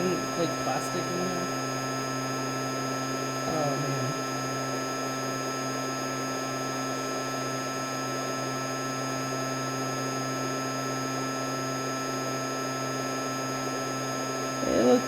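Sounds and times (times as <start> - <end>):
constant hum: 0.0 - 1.6, 3.4 - 4.4, 14.6 - 15.0.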